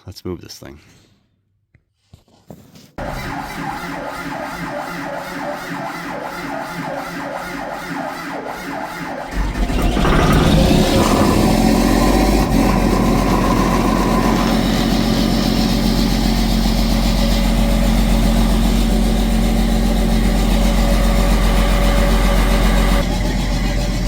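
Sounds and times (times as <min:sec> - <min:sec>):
tractor diesel engine idling: 0:03.0 - 0:24.0.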